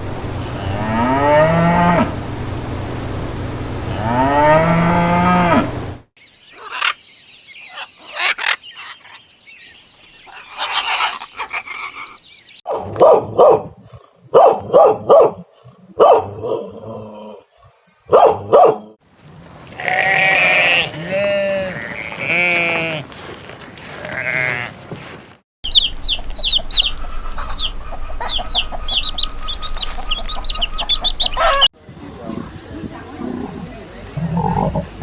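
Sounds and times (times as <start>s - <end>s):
cow mooing: 0.4s - 2.2s, 3.9s - 5.8s
dog barking: 12.7s - 16.6s, 18.1s - 19.0s.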